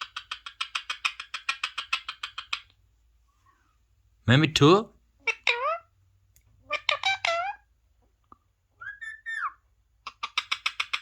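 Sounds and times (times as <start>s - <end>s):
parrot mimicking speech: 5.2s - 5.9s, 6.7s - 7.7s
parrot whistle: 8.8s - 9.6s.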